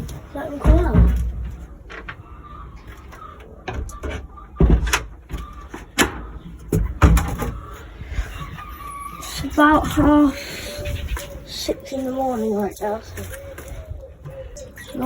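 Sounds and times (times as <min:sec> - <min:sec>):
sharp knocks and clatters: 0:03.6 - 0:07.6.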